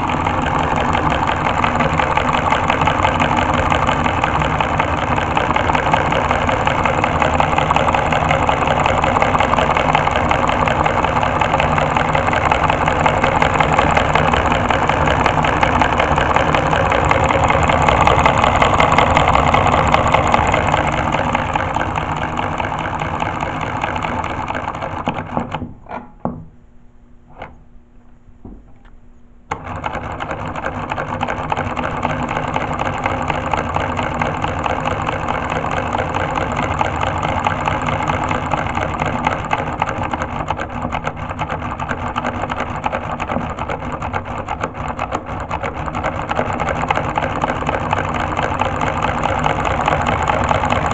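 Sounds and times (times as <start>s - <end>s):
solenoid engine buzzing clatter: 0.0s - 26.6s, 27.2s - 27.8s, 28.6s - 50.9s.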